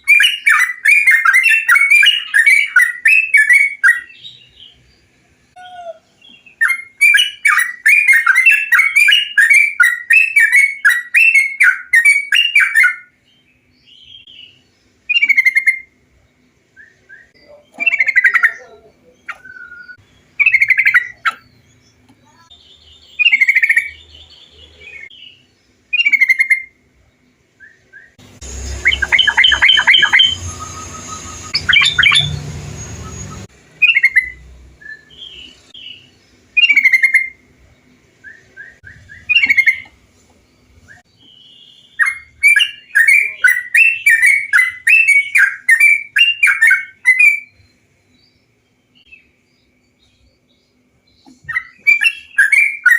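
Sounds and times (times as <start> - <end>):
bulbul whistled song: 0.0 - 4.8, 5.6 - 16.0, 16.7 - 18.6, 19.3 - 21.4, 24.8 - 26.8, 27.6 - 37.5, 38.2 - 40.0, 40.8 - 47.8, 51.2 - 52.9
chattering bird notes: 16.9 - 26.8, 28.2 - 41.4.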